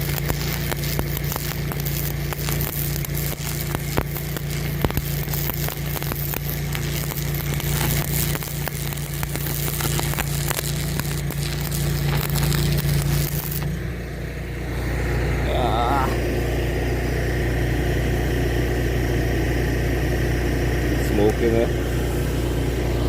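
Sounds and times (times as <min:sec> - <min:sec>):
electric arc welding crackling: 0:00.0 - 0:13.8
generator hum: 0:00.0 - 0:23.0.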